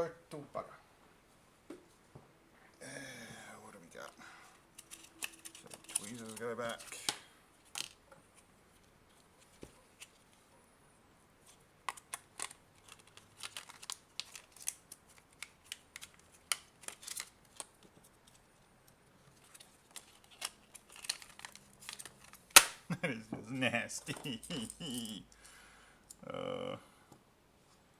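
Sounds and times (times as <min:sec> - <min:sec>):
tools and plastic parts tapping: 0:04.8 - 0:06.8.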